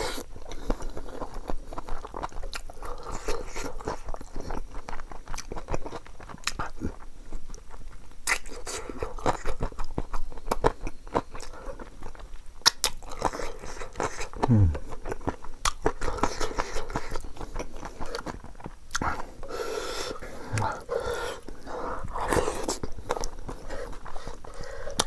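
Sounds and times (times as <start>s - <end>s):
man chewing food: 0.0s - 25.0s
low throat sound: 14.4s - 15.0s, 20.5s - 20.9s.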